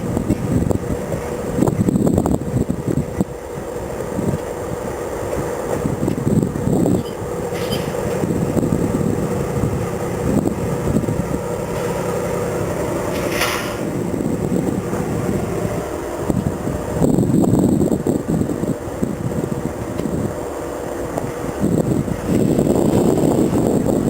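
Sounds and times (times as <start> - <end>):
freight train rumbling by: 0.0 - 24.0
burst of high-pitched noise: 11.6 - 14.6.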